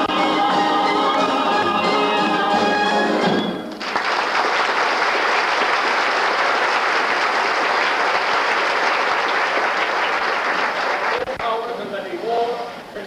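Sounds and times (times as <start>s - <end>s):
audience applauding: 2.5s - 11.4s.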